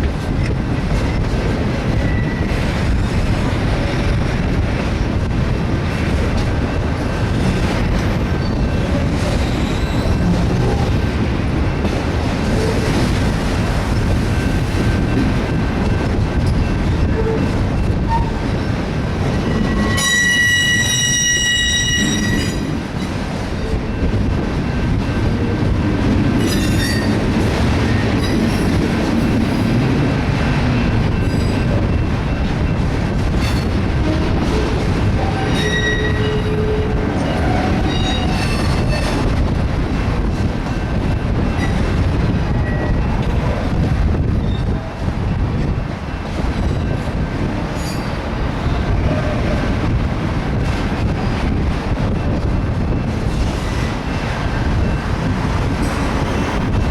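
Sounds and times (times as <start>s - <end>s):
train wheels rumbling on rail: 0.0s - 56.9s
high wheel squeal: 19.4s - 22.8s, 35.2s - 39.2s.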